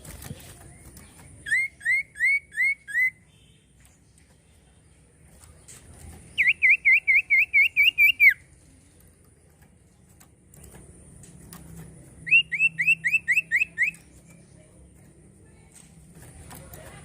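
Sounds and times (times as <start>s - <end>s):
bird singing whistled notes: 1.4s - 3.6s, 6.3s - 8.5s, 12.2s - 14.4s.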